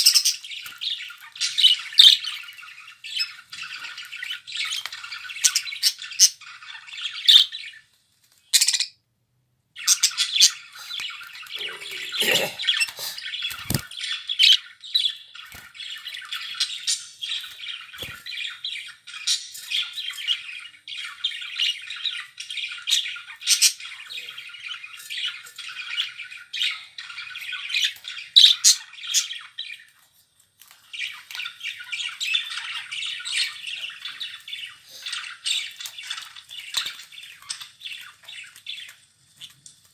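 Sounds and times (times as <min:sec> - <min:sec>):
budgerigars chattering and chirping: 0:00.0 - 0:07.8, 0:08.6 - 0:09.0, 0:09.8 - 0:30.0, 0:30.9 - 0:39.0.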